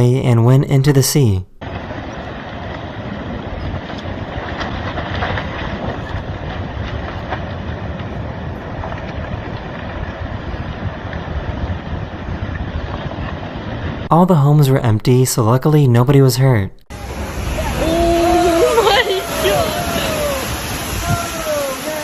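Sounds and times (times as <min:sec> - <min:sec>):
crackles: 0:01.6 - 0:14.1
landslide rushing: 0:01.6 - 0:14.1, 0:16.9 - 0:22.0.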